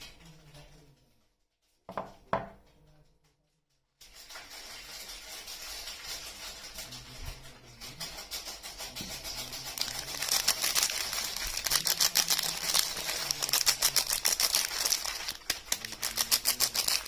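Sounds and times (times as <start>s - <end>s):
packaging crinkling: 9.5s - 17.0s.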